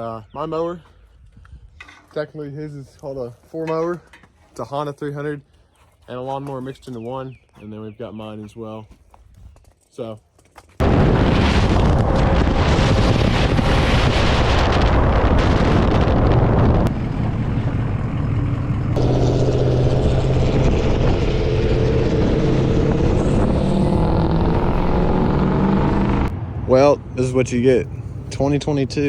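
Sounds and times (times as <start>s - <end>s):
wind and road noise: 0.0s - 2.2s, 9.1s - 29.0s
engine drone: 10.8s - 29.0s.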